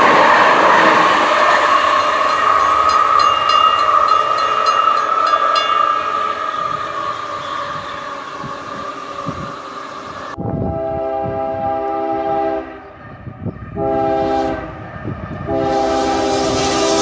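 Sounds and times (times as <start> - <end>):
train rumbling on rails: 0.0 - 17.0.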